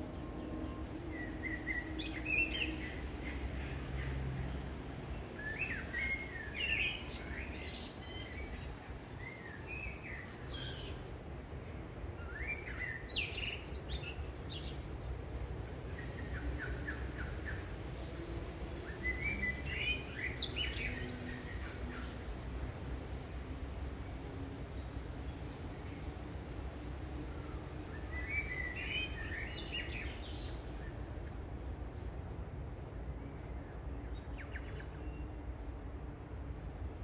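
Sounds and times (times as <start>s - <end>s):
small birds chirping: 6.5s - 23.6s.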